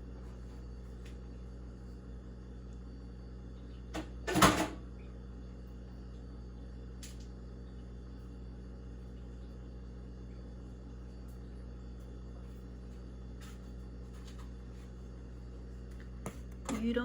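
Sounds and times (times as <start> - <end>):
low appliance hum: 0.0 - 17.0.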